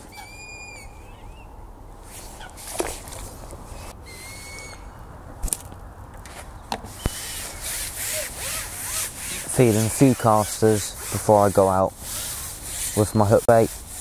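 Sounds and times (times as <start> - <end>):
birds whistling: 0.0 - 1.7, 3.8 - 5.1, 6.9 - 7.8
fishing tackle rustling: 2.0 - 4.0, 5.4 - 13.3.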